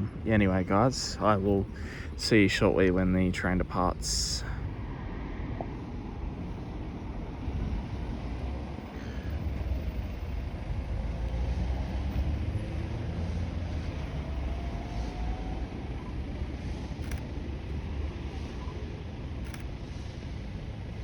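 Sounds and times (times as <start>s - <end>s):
locomotive rumble: 0.0s - 21.0s.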